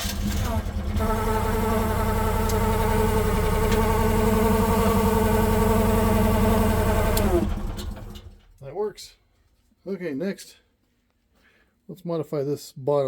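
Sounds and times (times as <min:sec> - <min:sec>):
small gasoline engine running: 0:00.0 - 0:08.4
engine winding down: 0:00.0 - 0:08.5.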